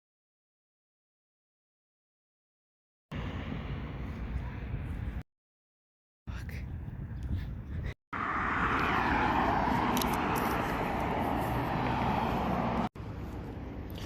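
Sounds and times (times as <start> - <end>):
quiet street ambience: 3.1 - 5.2, 6.3 - 14.0
passing vehicle rushing: 8.2 - 12.9.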